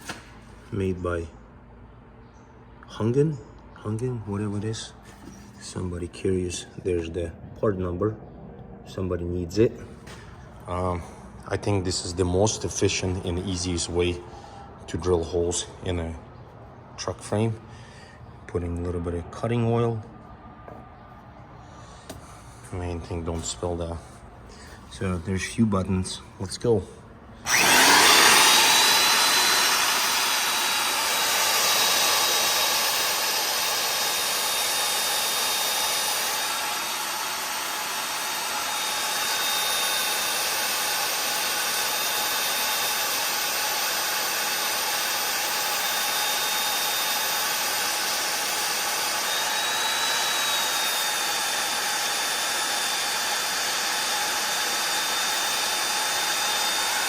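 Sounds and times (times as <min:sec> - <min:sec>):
magnetic drill motor whining: 0:27.4 - 0:57.0.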